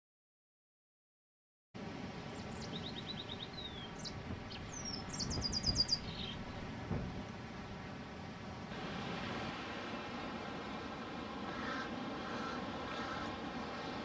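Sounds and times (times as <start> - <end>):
birds chirping: 2.2 - 6.8, 11.3 - 14.0
high bird trill: 2.4 - 6.6
low thumps: 6.5 - 7.3.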